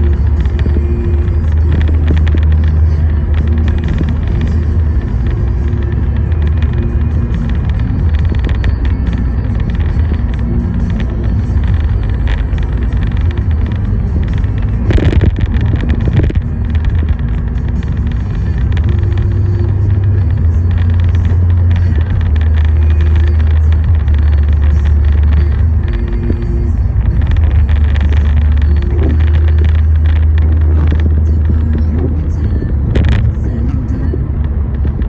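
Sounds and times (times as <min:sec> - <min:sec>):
car road and engine rumble: 0:00.0 - 0:35.0
loud rush of noise: 0:00.0 - 0:35.0.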